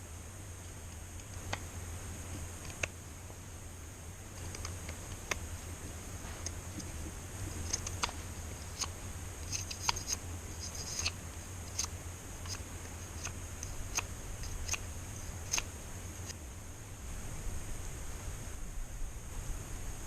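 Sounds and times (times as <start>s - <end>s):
high-pitched hiss: 0.0s - 20.0s
sharp clicks and light taps: 4.4s - 5.5s, 6.3s - 16.4s.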